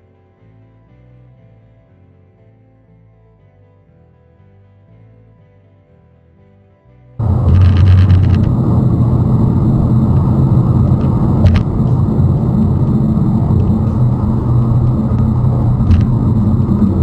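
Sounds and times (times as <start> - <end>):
car driving rumble: 7.2 - 17.0.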